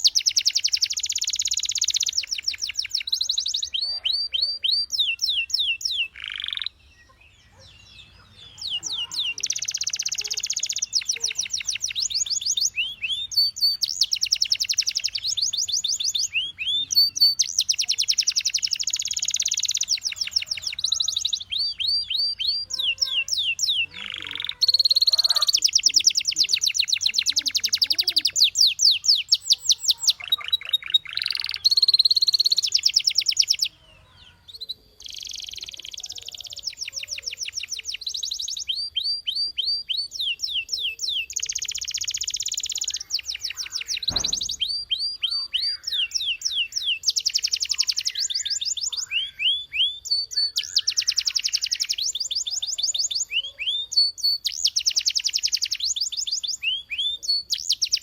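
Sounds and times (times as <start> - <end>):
canary singing: 0.0 - 58.0.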